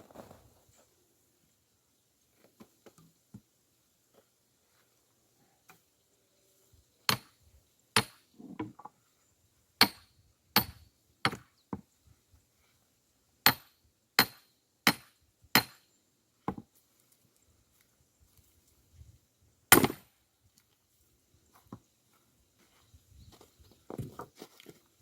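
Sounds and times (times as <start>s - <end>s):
axe chopping firewood: 7.1s - 7.3s, 8.0s - 8.8s, 9.8s - 10.0s, 10.6s - 11.5s, 13.5s - 15.8s, 19.7s - 20.1s.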